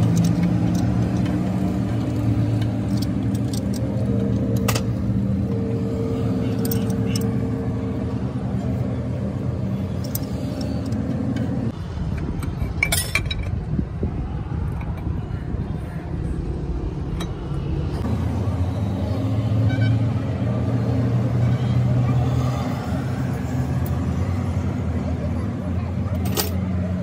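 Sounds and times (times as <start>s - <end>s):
engine running: 0.0s - 19.6s.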